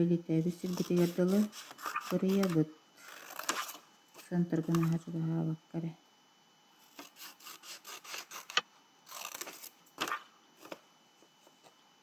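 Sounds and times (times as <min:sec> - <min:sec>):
scissors snipping paper: 0:00.6 - 0:03.8, 0:07.0 - 0:10.2.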